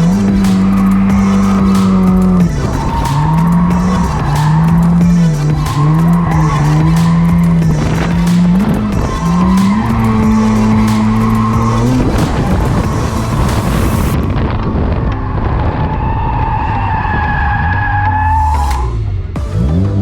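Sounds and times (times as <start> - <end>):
car engines at high revs: 0.0 - 14.2
tyres squealing and skidding: 0.0 - 14.2, 15.2 - 19.1
background music with steady beat: 0.0 - 15.6, 17.7 - 20.0.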